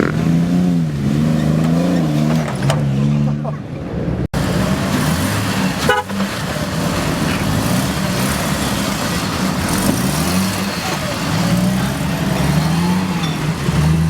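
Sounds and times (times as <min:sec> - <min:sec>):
engine running at low revs: 0:00.0 - 0:03.4.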